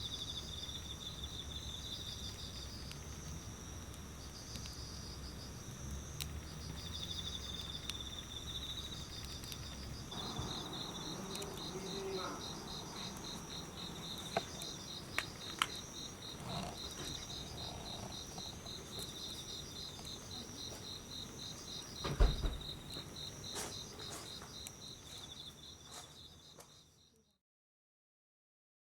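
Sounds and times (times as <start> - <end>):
crickets chirping in trills: 0.0 - 27.4
wood fire crackling: 0.2 - 26.5
loud thump: 22.0 - 22.8.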